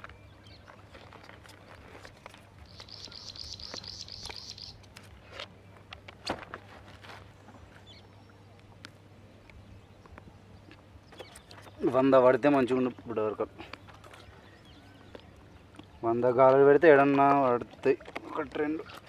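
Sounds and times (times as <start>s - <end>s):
fishing line clicks and rustles: 0.0s - 7.8s, 8.5s - 19.0s
bird chirping rapidly: 2.6s - 4.8s.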